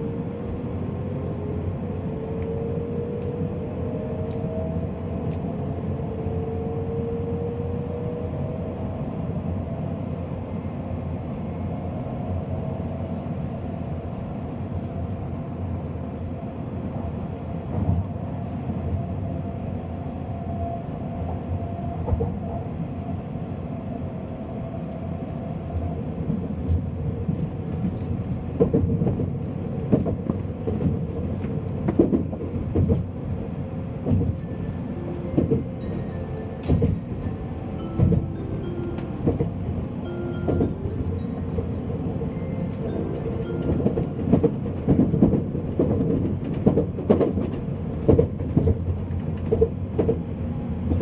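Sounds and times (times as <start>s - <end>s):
train cabin rumble: 24.6s - 51.0s.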